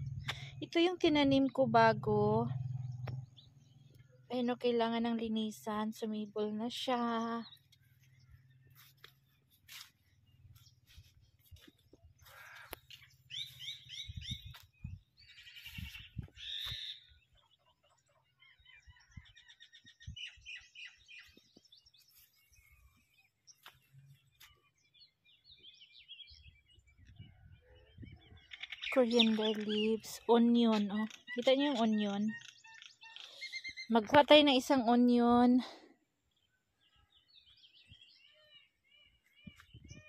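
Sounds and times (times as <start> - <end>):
small birds chirping: 0.0 - 40.0
soft low thumps: 10.5 - 15.2.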